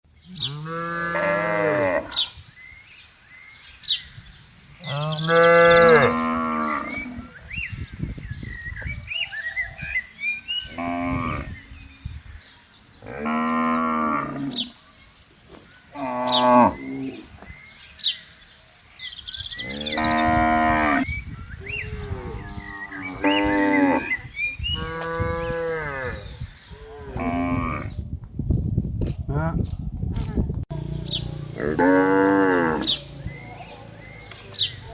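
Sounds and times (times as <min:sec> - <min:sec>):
cattle mooing: 0:19.6 - 0:21.1, 0:31.6 - 0:33.0.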